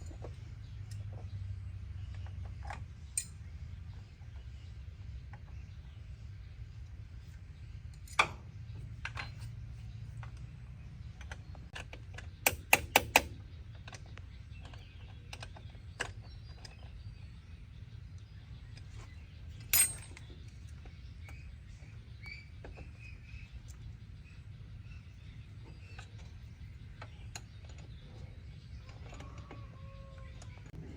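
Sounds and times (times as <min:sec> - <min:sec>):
sharp clicks and knocks: 0:10.2 - 0:17.0.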